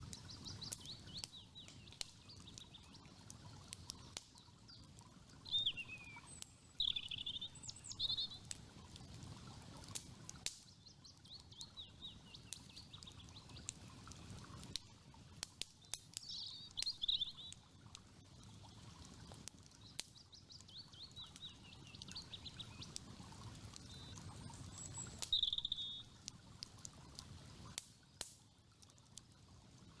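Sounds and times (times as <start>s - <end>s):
campfire crackling and popping: 0.0s - 30.0s
birds chirping and singing: 23.9s - 26.0s.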